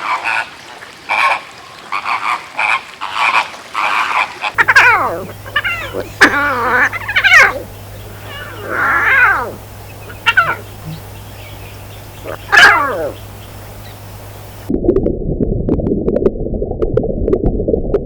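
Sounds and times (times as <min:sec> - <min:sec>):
cat meowing: 0:04.6 - 0:11.2, 0:11.9 - 0:14.7
steady low hum: 0:04.6 - 0:14.7.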